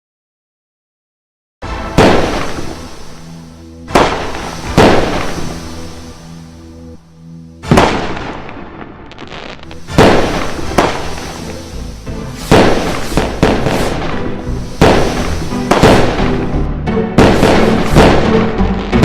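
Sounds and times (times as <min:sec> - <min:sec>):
firework bangs with crackle: 0:01.8 - 0:03.3, 0:03.9 - 0:06.1, 0:07.6 - 0:16.6, 0:17.2 - 0:19.0.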